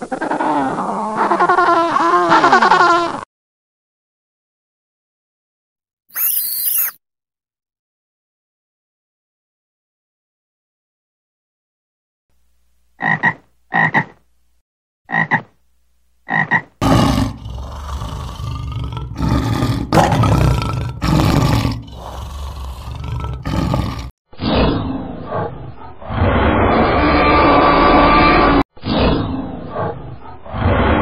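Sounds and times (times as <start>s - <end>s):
short croaking calls: 6.2s - 7.0s
lion roaring: 16.8s - 24.2s
dinosaur roar sound effect: 16.8s - 31.0s.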